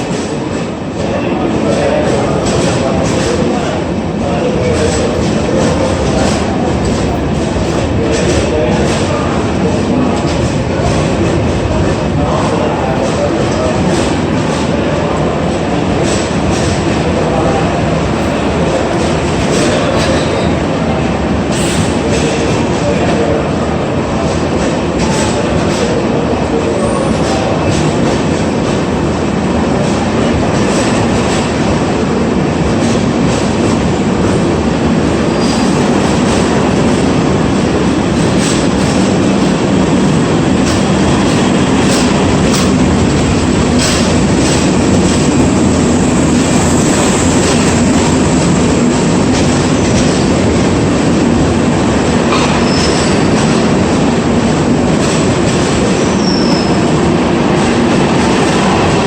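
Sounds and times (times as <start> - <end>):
train wheels rumbling on rail: 0.0 - 59.0
high wheel squeals: 56.1 - 56.9.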